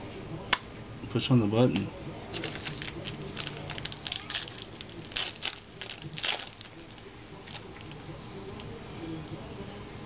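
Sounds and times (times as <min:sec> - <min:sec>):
card pack wrappers crinkling: 0:02.3 - 0:08.0.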